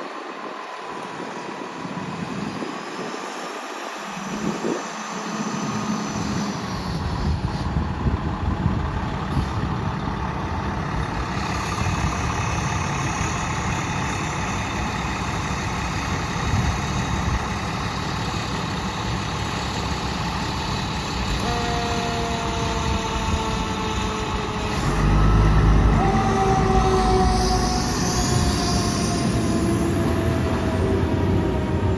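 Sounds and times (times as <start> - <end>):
diesel engine rumble: 0.0 - 31.9
air horn blasts: 21.3 - 30.2.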